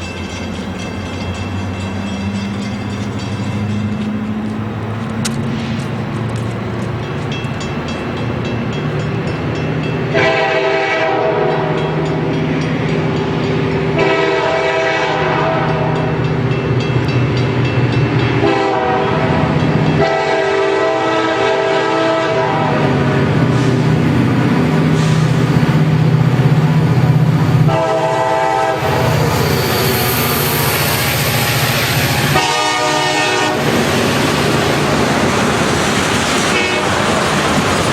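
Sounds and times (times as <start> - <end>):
diesel locomotive running: 0.0 - 37.9
train air horn blasts: 10.1 - 12.1, 13.9 - 16.2, 18.4 - 23.8, 27.6 - 33.8, 36.5 - 37.1.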